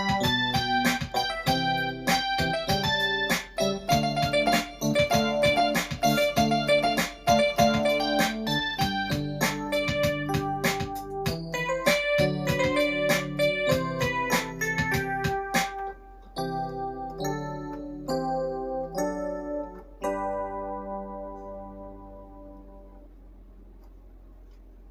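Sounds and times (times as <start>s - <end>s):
funk pop drum rhythm: 0.0s - 16.0s
electric piano keyboard: 0.0s - 24.9s.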